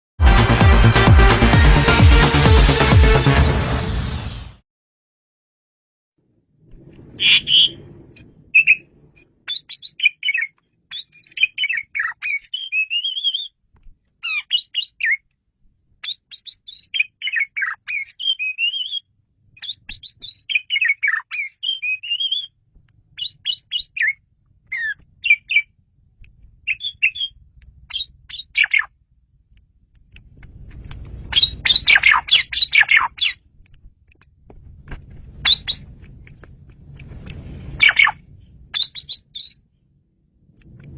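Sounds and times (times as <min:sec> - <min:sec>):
starling singing: 0:07.2 - 0:07.8, 0:09.5 - 0:13.5, 0:16.0 - 0:19.0, 0:19.6 - 0:22.6, 0:23.2 - 0:25.7, 0:26.6 - 0:28.9, 0:31.3 - 0:33.4, 0:35.4 - 0:35.9, 0:37.8 - 0:38.2, 0:38.8 - 0:39.6.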